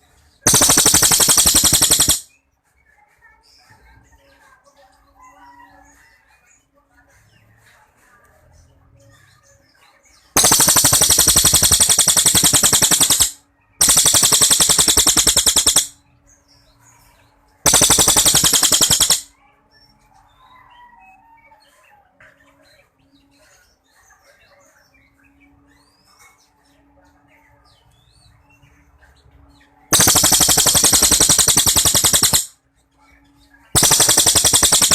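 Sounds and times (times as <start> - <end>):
faint chirps of other birds: 0.0 - 34.9
songbird rapid trill: 0.5 - 2.3, 10.4 - 15.9, 17.7 - 19.3, 29.9 - 32.5, 33.8 - 34.9.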